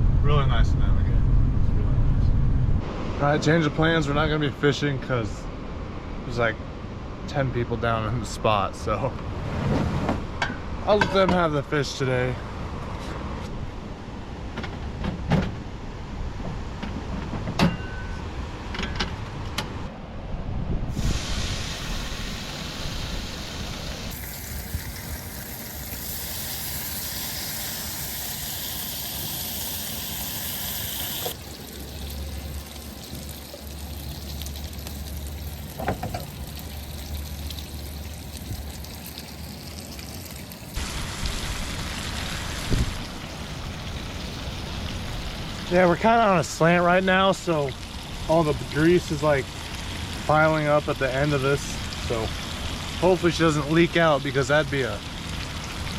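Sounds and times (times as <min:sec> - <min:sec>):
food sizzling in a pan: 0:20.9 - 0:35.5.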